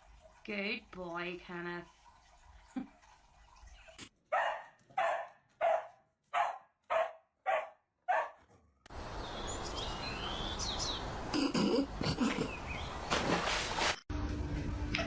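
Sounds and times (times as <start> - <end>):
dog barking: 4.3 - 8.5.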